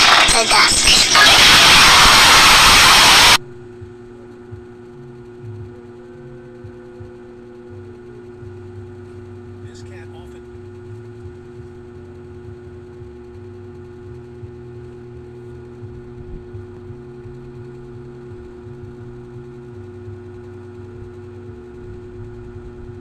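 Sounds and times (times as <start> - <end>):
low electronic drone: 0.0 - 23.0.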